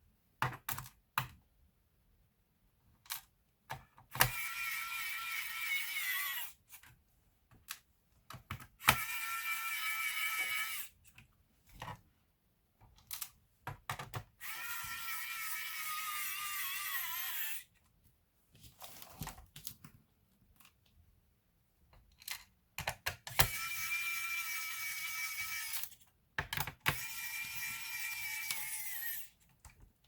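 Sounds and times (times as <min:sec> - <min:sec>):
small electric motor running: 0:04.3 - 0:06.6, 0:08.9 - 0:10.9, 0:14.4 - 0:17.6, 0:23.5 - 0:25.9, 0:26.9 - 0:29.3.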